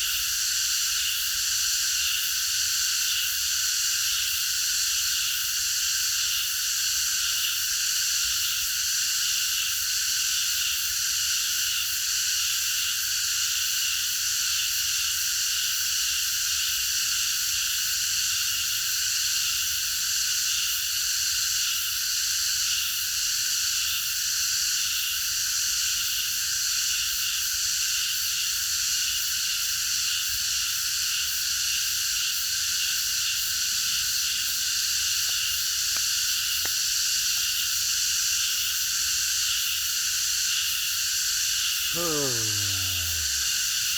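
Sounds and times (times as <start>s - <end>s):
cicadas droning: 24.6s - 43.9s.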